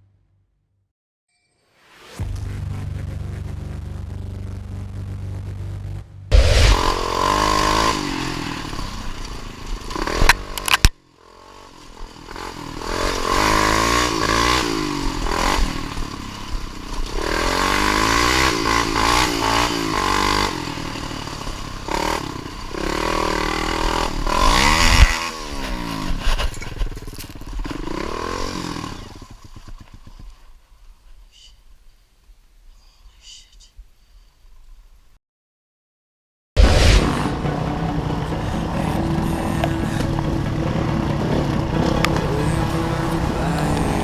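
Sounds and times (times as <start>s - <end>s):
dirt bike engine revving: 3.6s - 30.0s, 36.6s - 44.0s.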